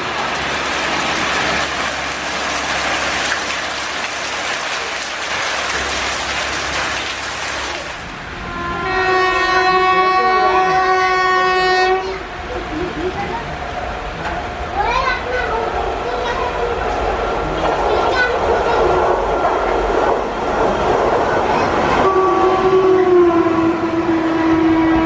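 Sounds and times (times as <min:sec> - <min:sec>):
heavy rain hiss: 0:00.0 - 0:22.0
train on the line: 0:00.0 - 0:25.0
locomotive horn blast: 0:08.4 - 0:12.4, 0:22.0 - 0:25.0.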